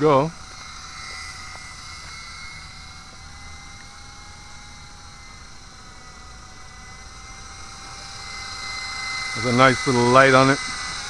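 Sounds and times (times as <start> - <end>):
toy helicopter motor whine: 0.0 - 11.0.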